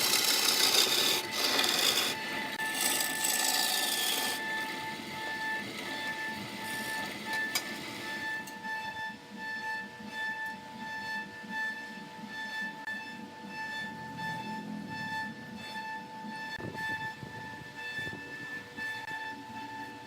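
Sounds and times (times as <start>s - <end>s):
wood lathe whining: 0.0s - 8.6s.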